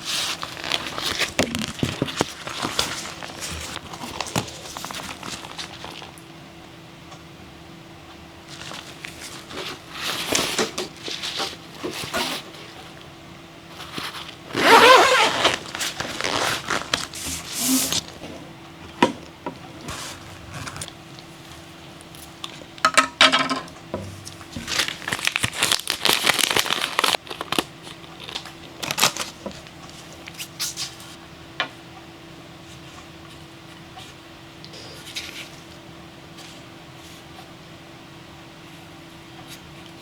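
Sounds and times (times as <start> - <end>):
packaging crinkling: 0.1 - 6.2, 8.5 - 12.8, 13.8 - 18.2, 19.8 - 22.6, 24.3 - 29.6
packaging tearing: 14.5 - 18.2, 19.8 - 21.2, 24.7 - 29.4.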